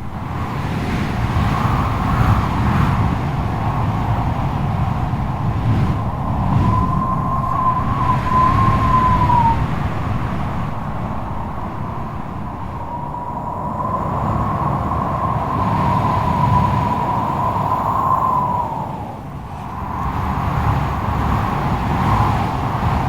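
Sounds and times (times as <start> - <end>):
strong gusting wind roar: 0.0 - 23.0
wavering howling whistle: 5.3 - 21.6.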